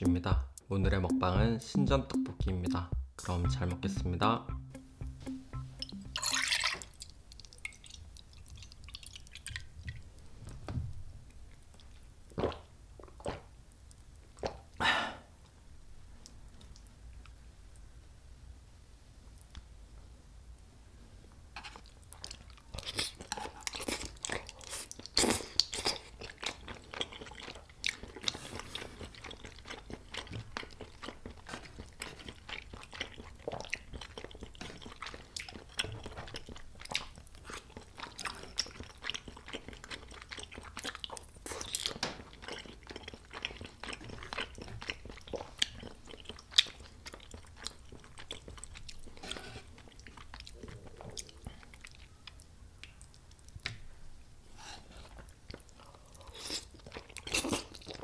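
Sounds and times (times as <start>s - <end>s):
chewing and biting: 21.6s - 53.6s.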